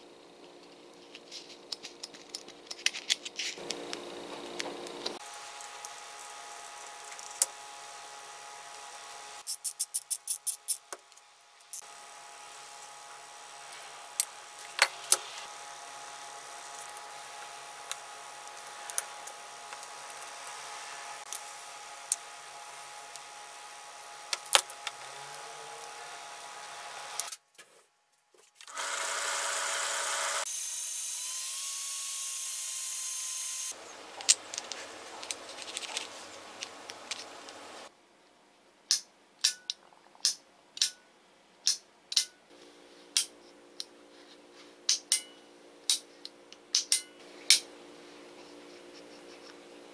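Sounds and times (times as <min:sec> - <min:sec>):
angle grinder grinding steel: 0:28.7 - 0:33.8
faint hum: 0:42.5 - 0:49.9.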